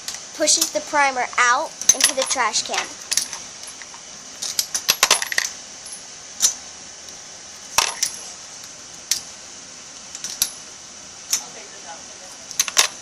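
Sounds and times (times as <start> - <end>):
metallic clinks of brass cases: 1.8 - 6.6.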